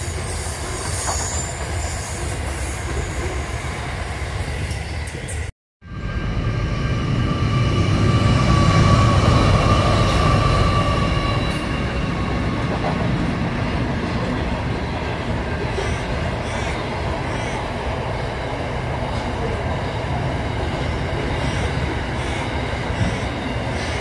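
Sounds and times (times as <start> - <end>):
high wheel squeal: 0.0 - 3.5
freight train rumbling past: 0.0 - 24.0.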